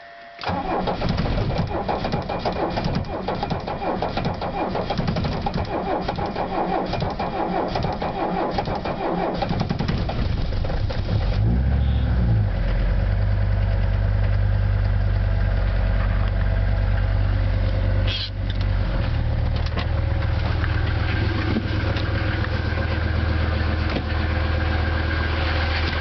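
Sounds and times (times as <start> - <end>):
starter motor cranking: 0.4 - 11.1
diesel engine idling: 0.4 - 26.0.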